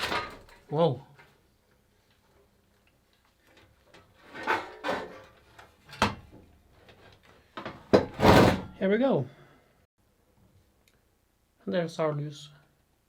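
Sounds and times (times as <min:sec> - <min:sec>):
hard parts scraping and knocking: 0:04.0 - 0:06.1.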